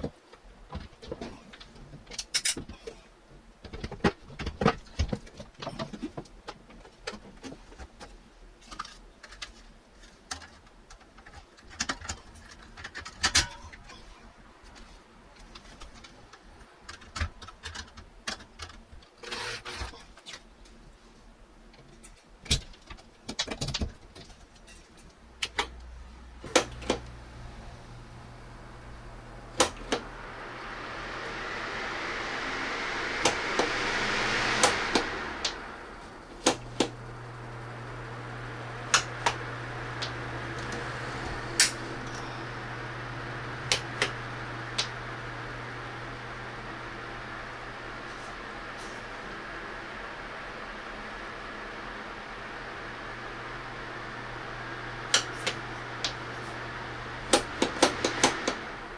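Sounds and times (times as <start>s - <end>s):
electric fan humming: 25.4s - 58.9s.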